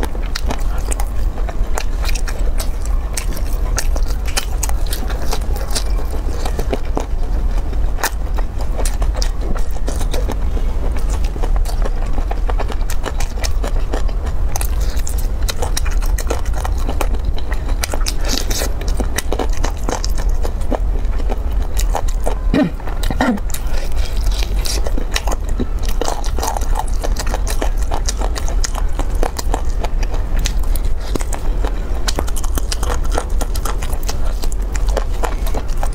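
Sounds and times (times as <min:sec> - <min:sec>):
chewing and biting ribs: 0:00.0 - 0:35.9
steady low hum: 0:00.0 - 0:35.9
meat tearing from bone: 0:11.0 - 0:22.2, 0:23.5 - 0:35.9.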